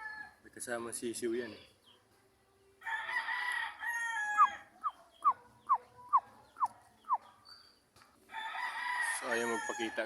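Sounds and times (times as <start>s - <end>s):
rooster crowing: 0.0s - 0.4s, 2.8s - 4.7s, 8.3s - 10.0s.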